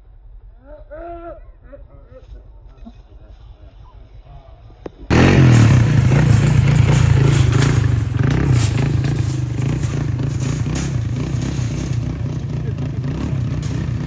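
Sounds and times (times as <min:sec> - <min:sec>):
atv engine running under load: 0:05.1 - 0:14.0
knocks and rattles: 0:05.1 - 0:14.0.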